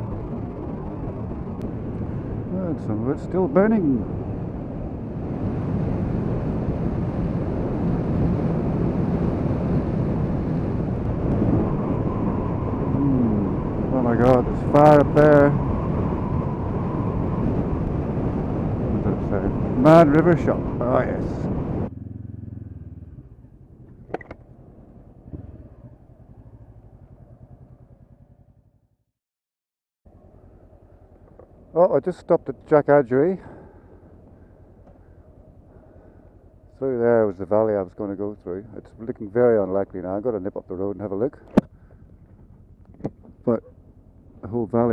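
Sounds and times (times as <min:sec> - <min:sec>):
wind rush on microphone: 0:00.0 - 0:21.9
motorcycle engine cruising: 0:00.0 - 0:29.0, 0:30.1 - 0:44.9
motorcycle engine running: 0:21.6 - 0:29.0, 0:41.4 - 0:44.5
sharp click: 0:24.1 - 0:24.4.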